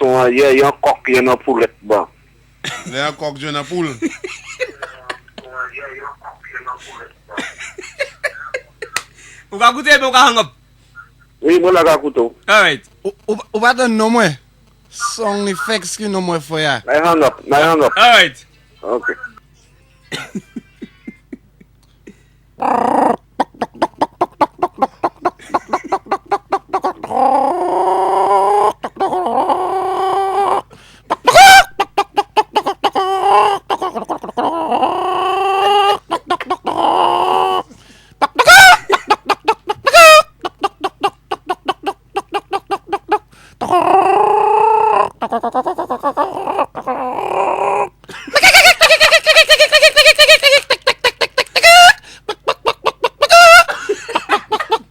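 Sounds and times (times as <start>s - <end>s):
man imitating clucking hens: 16.9s - 19.4s, 22.6s - 48.0s
man imitating rooster crowing: 26.8s - 31.9s, 32.5s - 37.7s, 38.3s - 38.9s, 39.9s - 40.4s, 43.0s - 48.0s, 51.6s - 52.1s, 53.2s - 53.7s.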